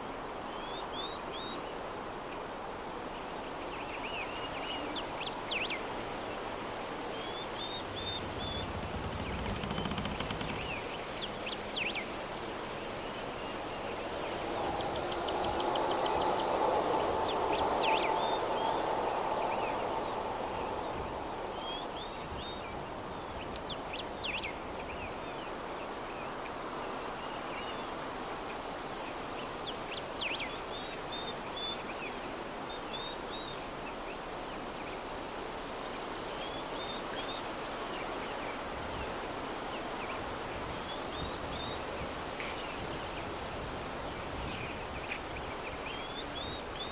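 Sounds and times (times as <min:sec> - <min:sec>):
soft breeze: 0:00.0 - 0:46.9
small birds chirping: 0:06.8 - 0:12.1
faint hum: 0:07.2 - 0:11.3.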